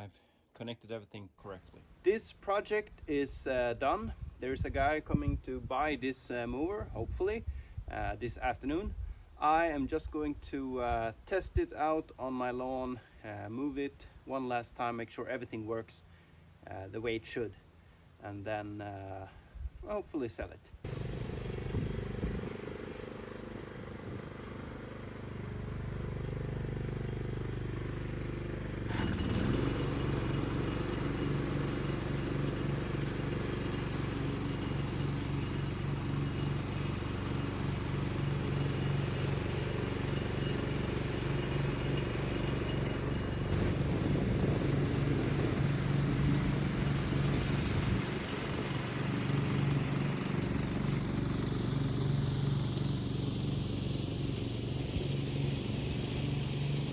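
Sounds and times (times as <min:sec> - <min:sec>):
ride-on lawn mower engine: 0:20.8 - 0:56.9.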